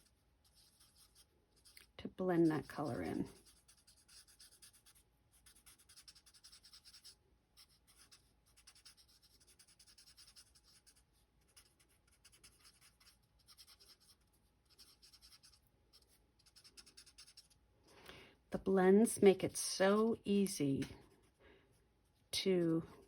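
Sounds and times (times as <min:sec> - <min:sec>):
marker scratching on paper: 0:00.0 - 0:17.6.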